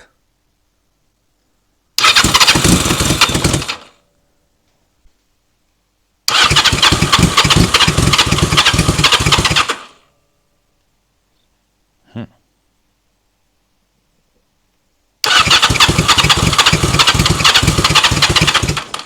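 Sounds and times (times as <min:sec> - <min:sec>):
motorcycle engine cranking: 0:02.0 - 0:03.9, 0:06.3 - 0:09.9, 0:15.2 - 0:19.0.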